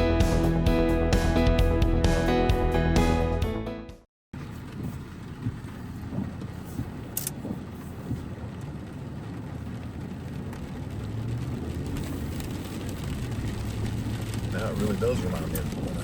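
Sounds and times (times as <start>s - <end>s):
car engine and road noise: 4.3s - 16.0s.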